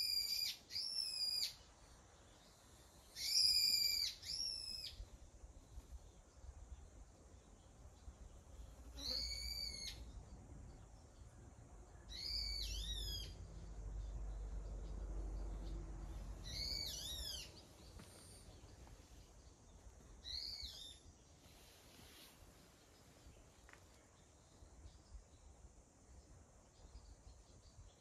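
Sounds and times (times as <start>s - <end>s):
bird whistling calls: 0.0s - 1.6s, 3.2s - 5.0s, 9.0s - 10.0s, 12.1s - 13.4s, 16.4s - 17.6s, 20.2s - 21.0s
faint low rumble: 10.0s - 20.4s.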